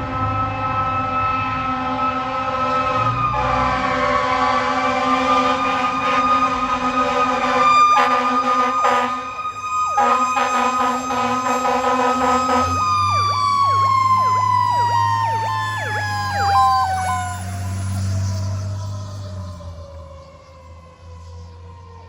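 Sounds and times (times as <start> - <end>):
loud horn blast: 1.7 - 17.2
electronic siren yelping: 4.2 - 20.0
low engine rumble: 4.4 - 20.2.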